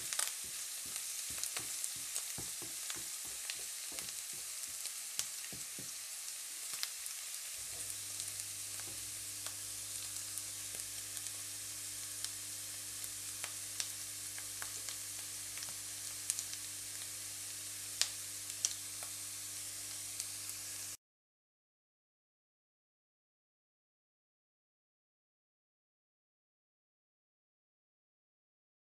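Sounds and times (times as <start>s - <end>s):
wooden spatula scraping a pan: 0.0s - 4.9s
mushrooms sizzling in a frying pan: 0.0s - 21.0s.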